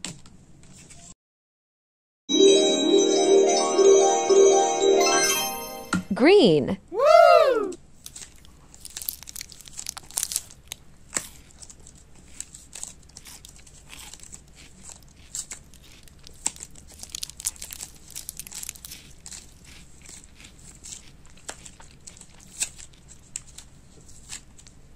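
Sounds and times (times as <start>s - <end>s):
slime squelching: 8.1s - 24.5s.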